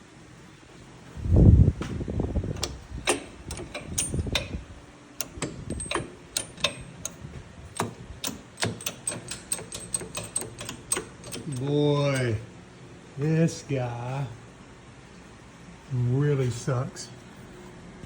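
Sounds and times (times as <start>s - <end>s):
sharp clicks and knocks: 1.8s - 12.4s.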